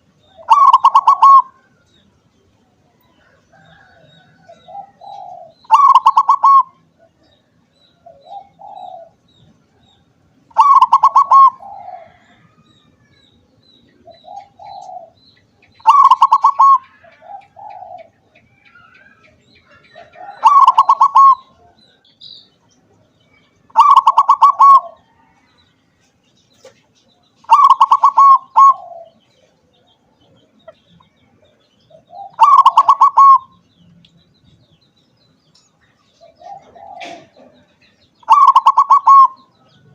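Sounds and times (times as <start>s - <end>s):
dove cooing and trilling: 0.0s - 1.8s, 3.5s - 7.4s, 8.0s - 9.2s, 10.5s - 12.8s, 13.9s - 22.0s, 23.5s - 25.4s, 27.4s - 29.9s, 31.8s - 33.6s, 36.1s - 39.8s.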